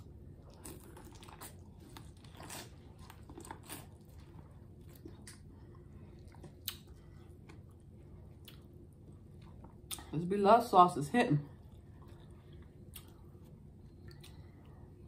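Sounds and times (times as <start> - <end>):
wet crunches of chewing corn: 0.0 - 10.2.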